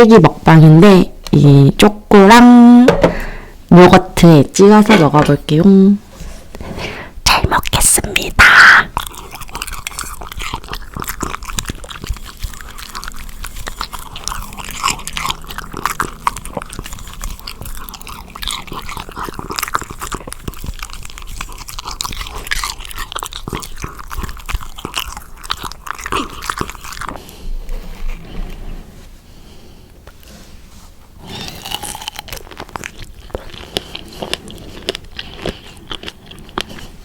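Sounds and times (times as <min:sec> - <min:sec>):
wet crunchy chewing: 0:07.6 - 0:28.8, 0:31.1 - 0:37.0.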